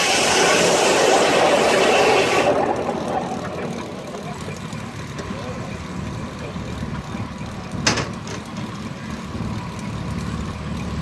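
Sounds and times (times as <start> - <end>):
sharp noisy burst: 0.0 - 4.2
sawmill mechanical rumble: 0.0 - 11.0.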